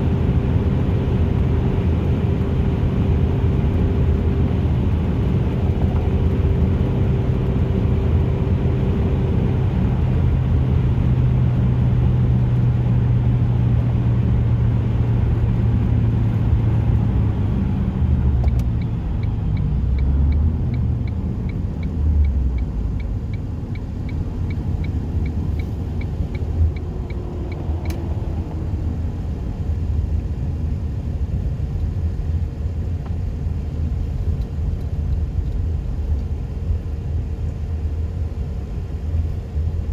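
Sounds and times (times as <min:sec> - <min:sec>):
car engine droning: 0:00.0 - 0:39.9
light regular ticking: 0:18.4 - 0:28.5.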